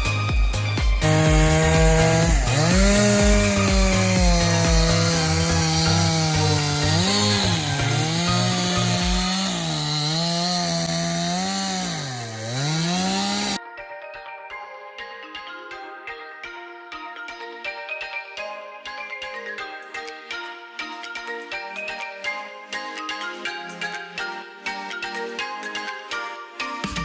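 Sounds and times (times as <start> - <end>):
chainsaw cutting wood: 0.0 - 13.6.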